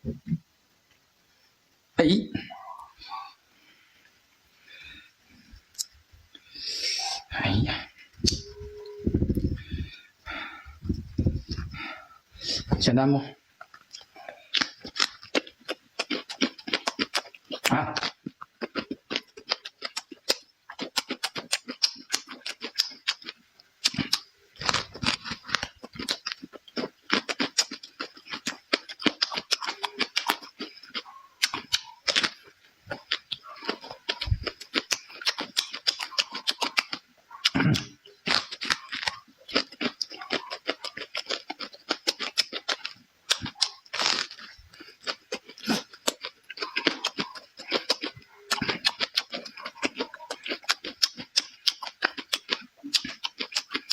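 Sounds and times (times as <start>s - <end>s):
person chewing and lip-smacking: 5.7s - 12.8s, 13.6s - 53.9s.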